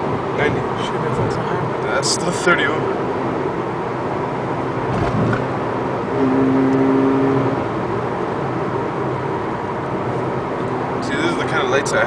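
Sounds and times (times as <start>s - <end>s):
car engine and road noise: 0.0s - 12.0s
humming note: 6.1s - 7.6s.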